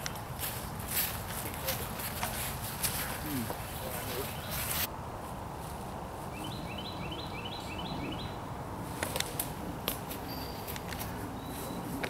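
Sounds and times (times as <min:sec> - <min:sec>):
outdoor background noise: 0:00.0 - 0:12.0
bird chirping: 0:03.1 - 0:04.9, 0:06.3 - 0:08.5, 0:10.2 - 0:12.0.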